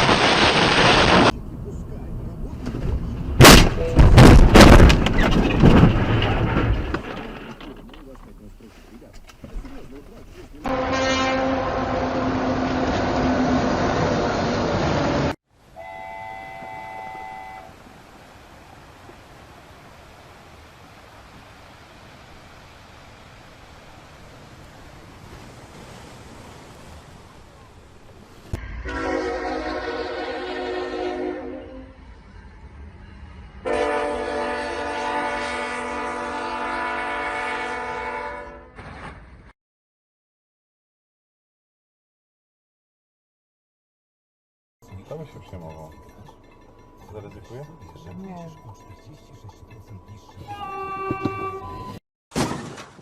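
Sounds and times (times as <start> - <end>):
horn sounding a chord: 10.7 - 13.8, 15.8 - 17.8, 28.6 - 31.9
loud horn blaring: 10.7 - 14.6, 15.8 - 17.8, 28.6 - 32.0, 33.6 - 38.8, 50.5 - 52.0.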